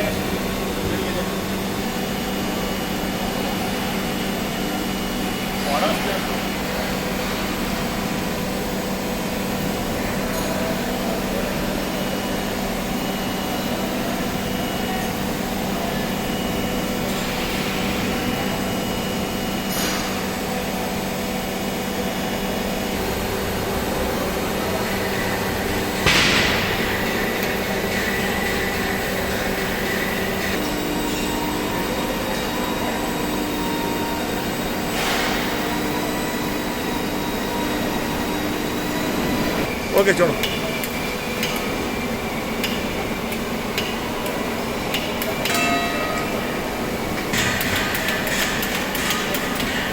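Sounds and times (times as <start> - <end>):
hydraulic press humming: 12.8 - 49.9
loud sharp bang: 26.0 - 28.0.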